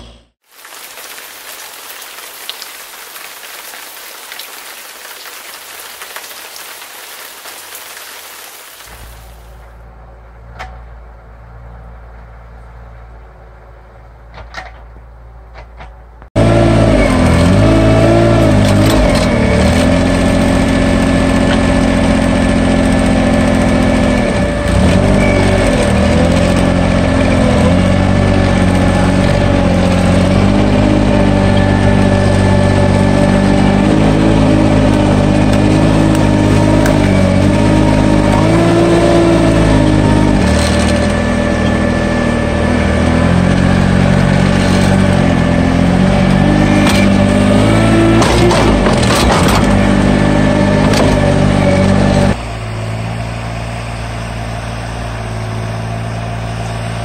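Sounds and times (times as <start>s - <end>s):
small engine running under load: 16.4s - 57.0s.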